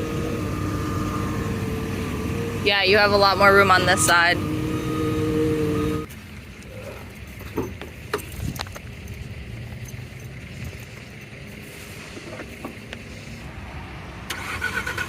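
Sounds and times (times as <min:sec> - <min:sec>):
rough engine revving: 0:00.0 - 0:06.1
vehicle engine idling: 0:00.0 - 0:15.0.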